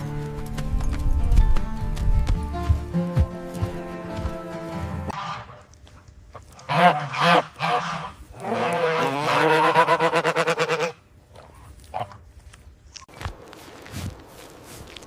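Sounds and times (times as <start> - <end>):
background music: 0.0 - 5.2.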